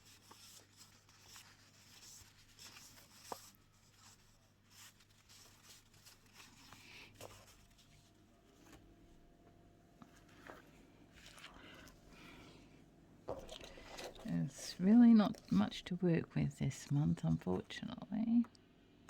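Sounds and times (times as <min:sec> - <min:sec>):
paper rustling: 0:00.0 - 0:08.9, 0:10.0 - 0:12.4.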